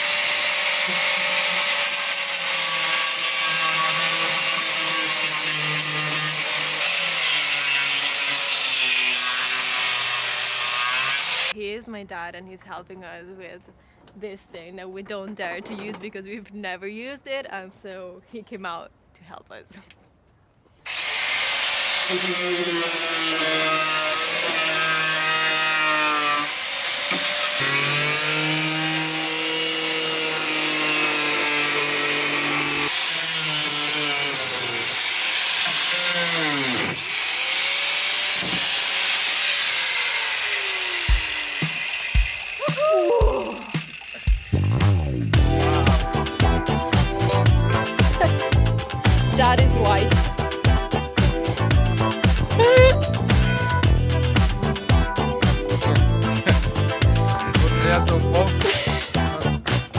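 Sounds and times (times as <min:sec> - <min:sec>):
power tool cutting: 0:00.0 - 0:11.6, 0:20.9 - 0:59.9.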